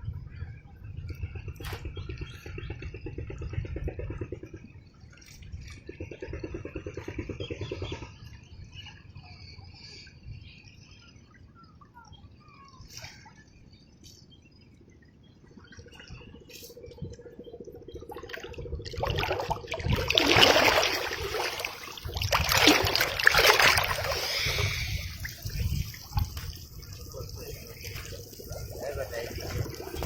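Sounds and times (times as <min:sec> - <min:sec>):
low rapid rhythmic rumble: 0:00.0 - 0:08.5.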